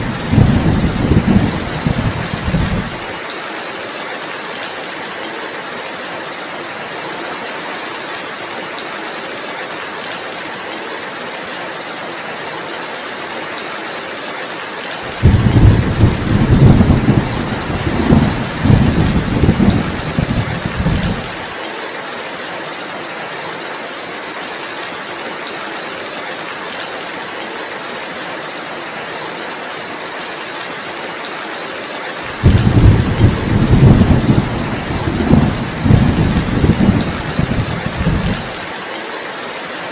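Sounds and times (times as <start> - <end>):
thunder rumbling: 0.0 - 3.1, 15.1 - 21.4, 32.3 - 38.6
heavy rain hissing: 0.0 - 3.3, 15.0 - 21.7, 32.2 - 38.9.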